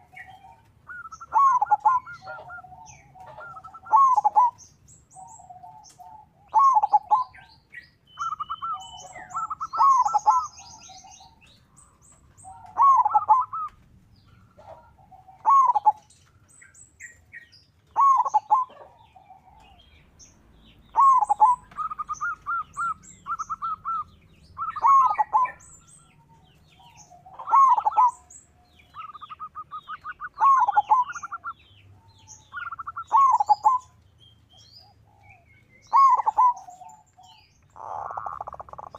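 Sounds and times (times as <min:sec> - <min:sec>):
high-pitched bird chirps: 0:00.0 - 0:11.4, 0:12.4 - 0:13.8, 0:18.0 - 0:18.7, 0:20.8 - 0:34.0, 0:35.8 - 0:38.9
dove cooing: 0:00.0 - 0:38.9.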